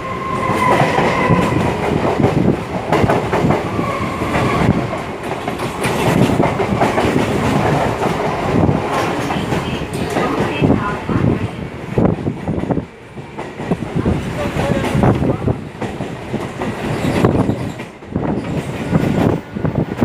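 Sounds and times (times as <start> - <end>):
train wheels knocking over rail joints: 4.3 - 10.6.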